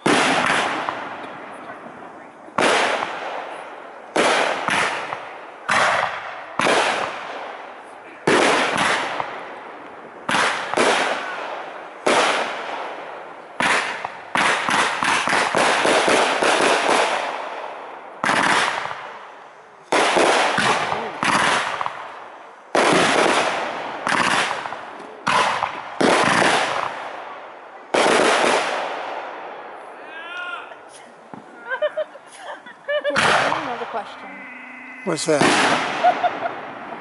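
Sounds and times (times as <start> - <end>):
firework crackle: 0.0 - 30.0, 31.1 - 37.0
firework shells bursting: 10.2 - 19.3, 19.9 - 27.2, 35.0 - 37.0.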